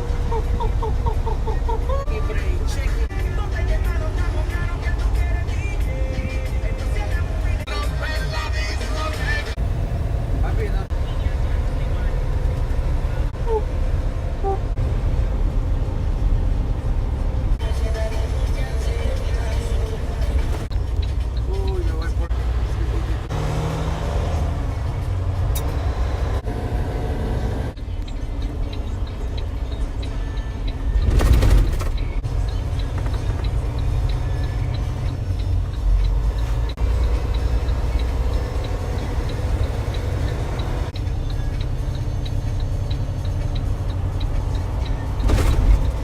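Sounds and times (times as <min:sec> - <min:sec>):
truck cabin road rumble: 0:00.0 - 0:46.0
faint regular ticking: 0:32.5 - 0:45.2.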